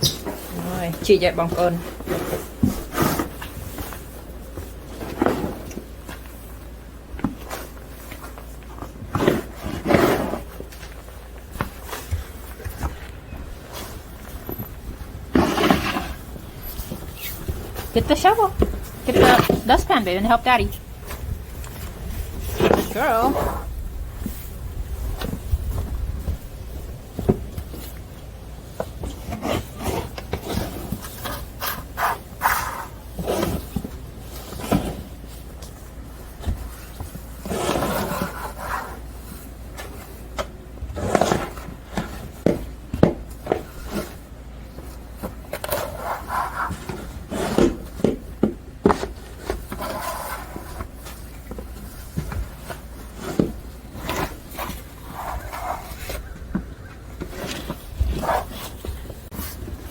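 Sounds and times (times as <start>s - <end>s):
snow shovel scraping snow: 9.1s - 10.7s, 15.3s - 20.8s, 22.0s - 23.7s, 37.4s - 39.1s, 45.7s - 47.9s.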